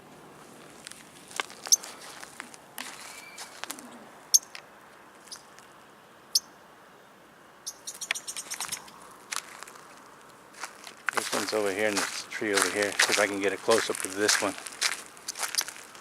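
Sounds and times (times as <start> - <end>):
songbird chirping: 5.2 - 5.6, 6.3 - 9.7.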